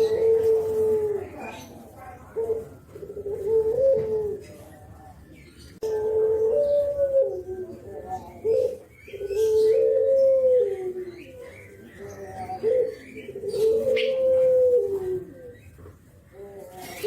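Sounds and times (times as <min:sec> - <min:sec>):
dove cooing: 0:00.0 - 0:17.0
small birds chirping: 0:00.0 - 0:17.0.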